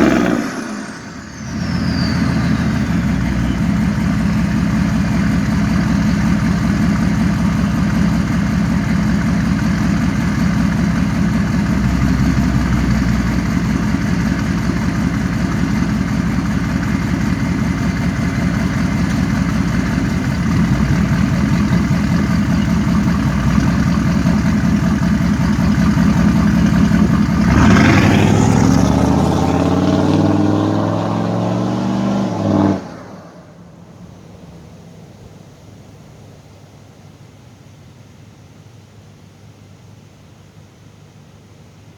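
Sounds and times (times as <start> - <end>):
diesel engine idling and revving: 0.0 - 34.6.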